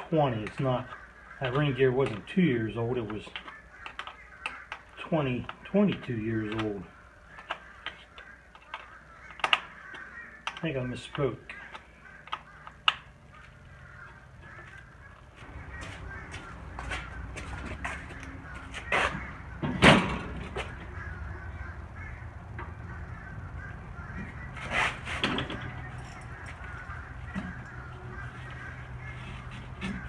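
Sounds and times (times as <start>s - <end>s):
birds cawing: 0.0s - 30.0s.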